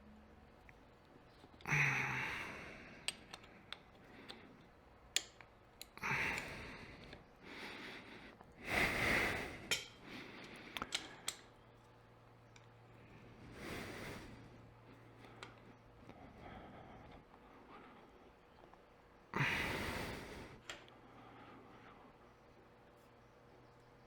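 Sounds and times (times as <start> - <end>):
clicks and knocks of metal parts: 3.0 - 7.2, 9.7 - 12.8.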